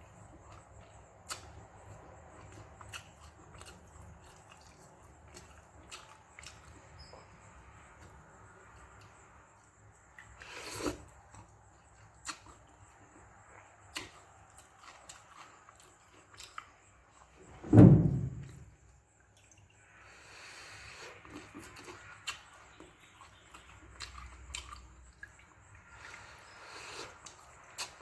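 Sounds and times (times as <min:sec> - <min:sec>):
loud deep thud: 0:17.6 - 0:18.7
wet chewing mouth clicks: 0:21.2 - 0:26.2.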